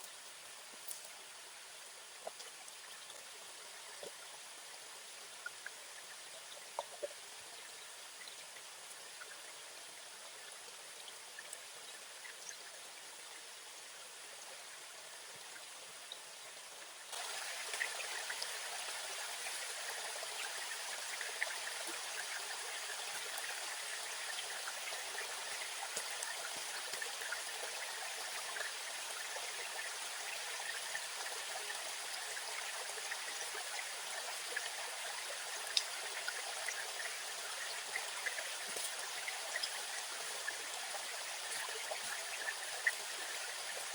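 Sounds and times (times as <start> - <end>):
stream rushing and trickling: 0.0 - 43.9.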